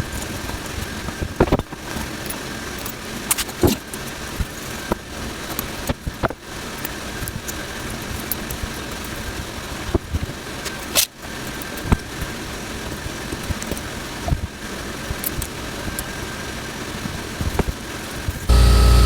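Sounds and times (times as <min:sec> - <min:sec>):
tattoo machine buzzing: 0:18.5 - 0:19.0.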